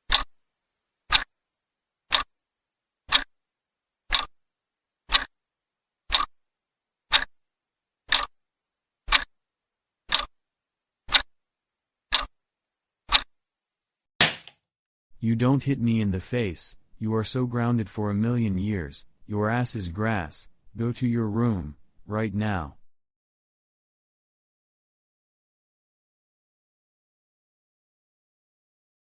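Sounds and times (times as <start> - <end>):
clock ticking: 0.0 - 0.3, 1.1 - 1.3, 2.1 - 2.3, 3.1 - 3.4, 4.1 - 4.4, 5.1 - 5.3, 6.1 - 6.4, 7.1 - 7.4, 8.1 - 8.4, 9.1 - 9.3, 10.1 - 10.3, 11.1 - 11.3, 12.1 - 12.3, 13.1 - 13.3.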